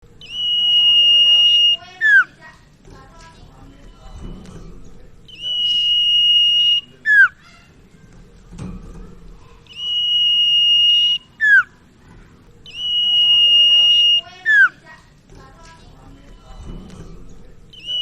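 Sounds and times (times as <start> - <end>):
bird whistling song: 0.2 - 2.4, 5.3 - 7.6, 9.7 - 11.8, 12.6 - 14.8, 17.7 - 18.0.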